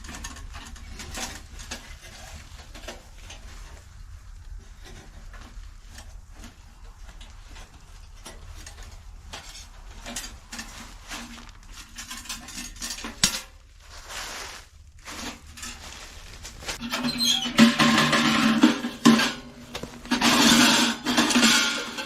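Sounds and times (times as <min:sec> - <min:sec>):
dishes and utensils clinking: 0:16.8 - 0:22.0.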